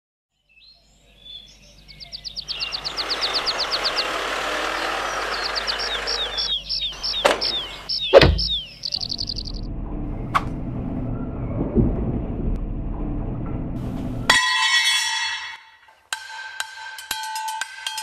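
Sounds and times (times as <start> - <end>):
songbird trilling: 0.5 - 9.6
vehicle rolling in: 2.1 - 14.3
sharp knocks: 8.1 - 8.7
low thud: 8.1 - 8.8.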